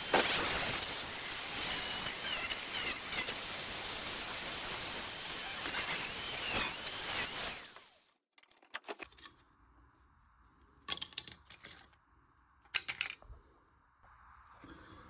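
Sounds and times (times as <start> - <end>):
angle grinder spinning down: 0.0 - 3.8, 4.7 - 7.9
metal clicking and rattling: 12.6 - 13.2.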